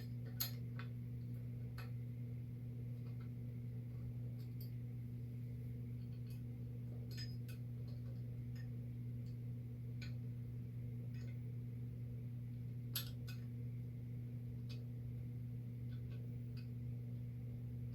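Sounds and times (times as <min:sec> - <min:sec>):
low electrical hum: 0:00.0 - 0:17.9
small metal parts clinking: 0:07.1 - 0:08.7, 0:12.9 - 0:13.5.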